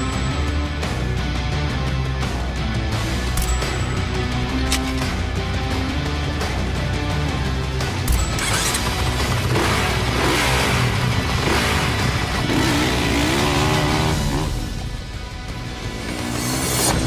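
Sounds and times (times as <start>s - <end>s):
background music: 0.0s - 17.0s
dirt bike engine revving: 8.3s - 14.8s.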